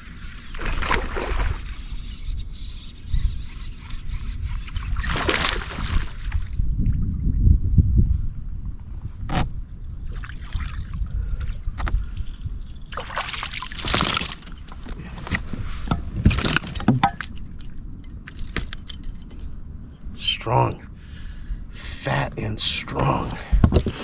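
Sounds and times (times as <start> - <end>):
fish splashing and flapping: 0.4 - 1.8, 4.6 - 6.5, 12.9 - 15.7
lure hooks rattling: 4.6 - 5.6, 12.9 - 20.1, 23.7 - 24.0.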